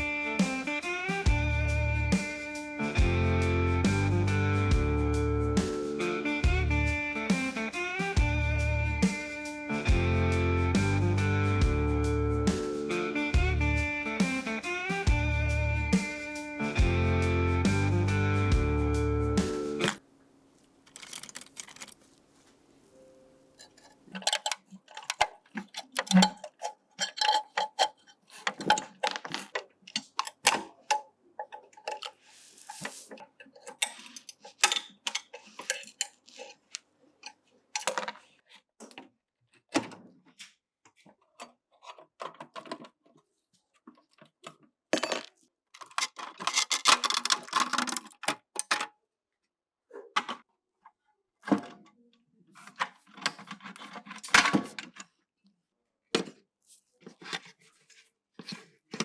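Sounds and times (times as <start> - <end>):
hand tools scraping: 19.8 - 20.0
small parts clicking and tapping: 20.8 - 22.2, 23.6 - 32.2, 33.2 - 38.2, 44.0 - 48.9.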